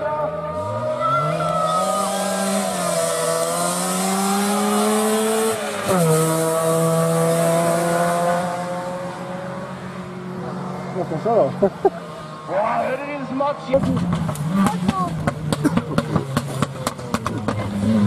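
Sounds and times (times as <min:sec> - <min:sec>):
rally car engine at full throttle: 0:00.0 - 0:18.0.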